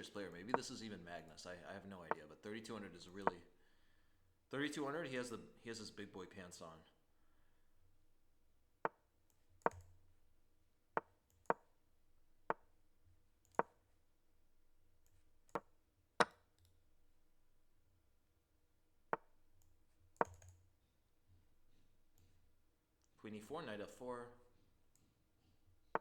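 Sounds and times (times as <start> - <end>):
mouse clicks: 8.9 - 9.9, 19.2 - 20.6.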